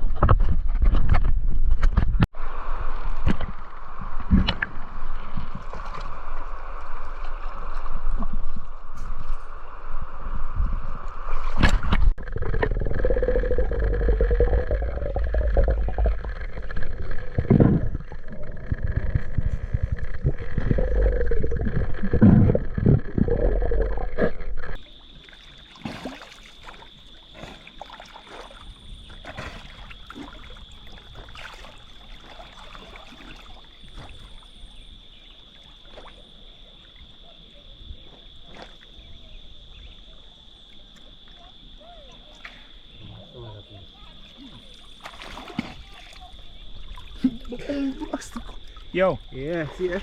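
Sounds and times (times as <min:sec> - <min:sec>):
river water sloshing and gurgling: 0:02.3 - 0:39.3, 0:43.9 - 0:50.0
heavy rumble: 0:11.7 - 0:24.8.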